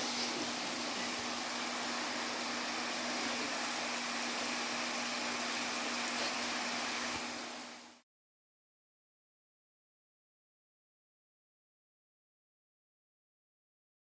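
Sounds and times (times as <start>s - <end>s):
waterfall rushing: 0.0s - 7.7s.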